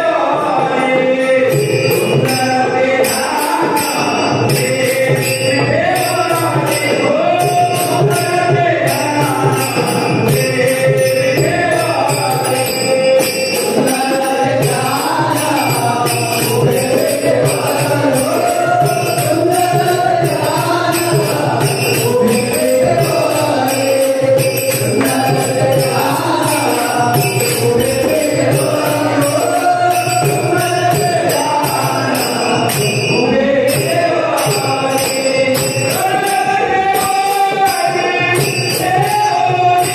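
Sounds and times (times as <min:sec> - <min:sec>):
hand cymbals jingling beat: 0:00.0 - 0:39.9
person singing devotional melody: 0:00.0 - 0:39.9.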